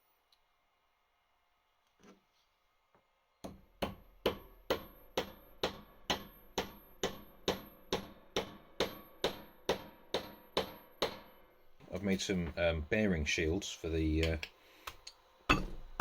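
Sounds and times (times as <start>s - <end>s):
hammer strikes ringing: 3.8s - 11.7s, 15.5s - 16.0s.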